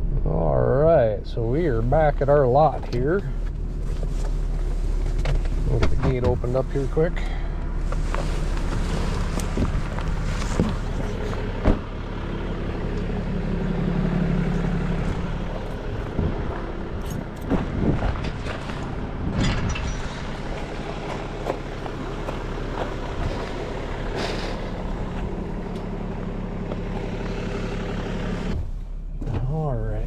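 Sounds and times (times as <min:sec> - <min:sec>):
truck engine idling: 0:00.0 - 0:30.0
metal clanks and knocks: 0:16.1 - 0:21.7.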